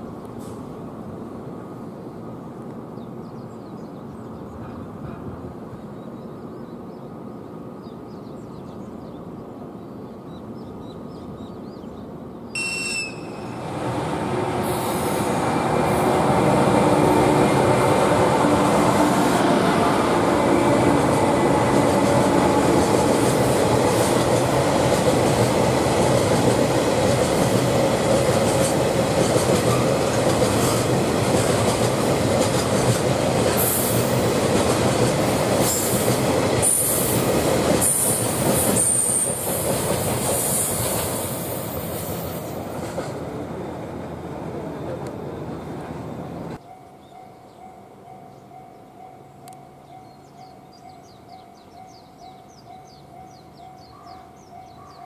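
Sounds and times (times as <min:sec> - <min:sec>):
locomotive whistle blast: 0:12.6 - 0:13.6
steel wheels rolling on rails: 0:13.1 - 0:43.4.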